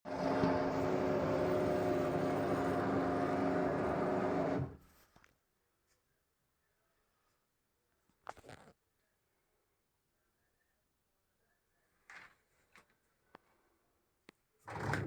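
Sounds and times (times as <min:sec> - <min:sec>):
washing machine humming: 0:00.0 - 0:04.8.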